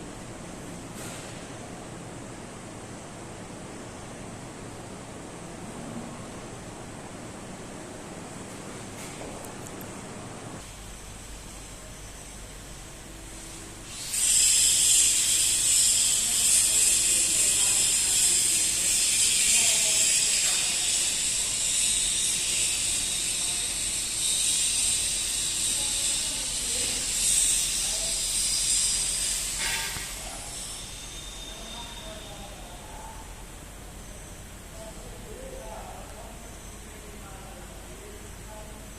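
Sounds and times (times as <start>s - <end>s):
pressurised gas hissing: 13.3s - 18.1s.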